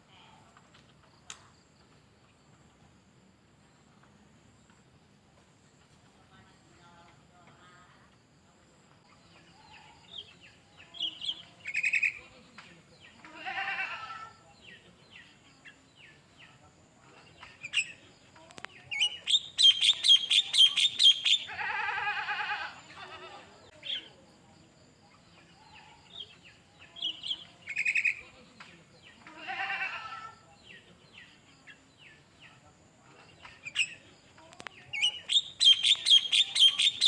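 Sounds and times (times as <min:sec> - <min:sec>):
songbird singing: 0:08.9 - 0:13.8, 0:14.4 - 0:22.4, 0:23.0 - 0:37.0.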